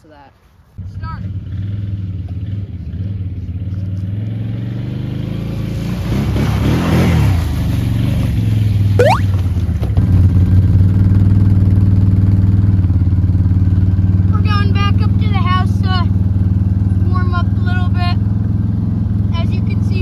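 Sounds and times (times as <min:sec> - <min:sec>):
brief rising squeal: 0:09.0 - 0:09.3.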